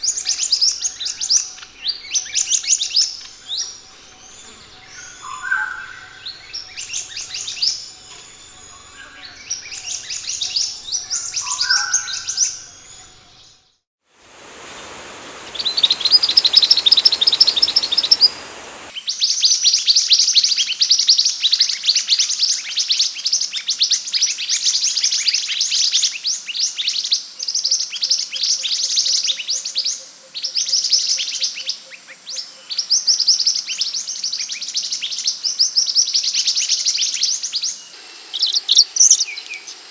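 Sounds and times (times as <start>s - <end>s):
birds high chirps and trills: 0.0s - 13.5s, 14.3s - 19.0s.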